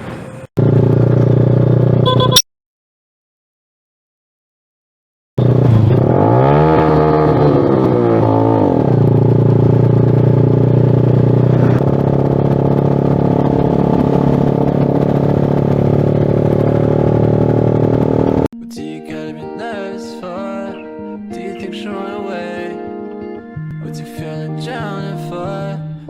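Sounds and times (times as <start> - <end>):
motorcycle engine revving: 0.6 - 2.4, 5.4 - 18.5.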